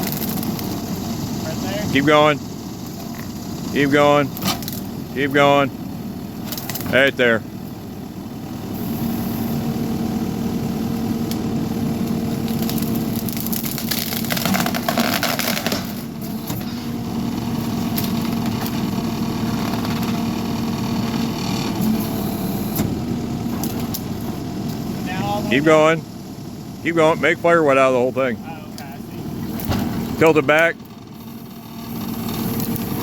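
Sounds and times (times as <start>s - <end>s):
skid steer engine humming: 0.0s - 33.0s
wood crackling and snapping: 6.5s - 6.9s, 12.0s - 16.1s.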